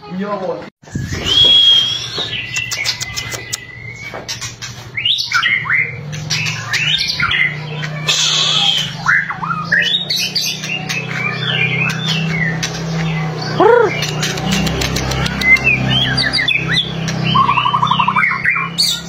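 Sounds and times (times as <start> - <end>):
bird whistled song: 0.9 - 4.4, 5.0 - 19.0
bird crackling clicks: 2.5 - 3.6, 14.0 - 15.8.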